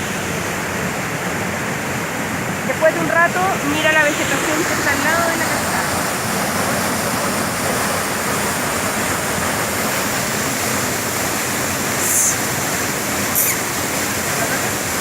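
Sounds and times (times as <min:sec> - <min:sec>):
waterfall pouring: 0:03.6 - 0:15.0.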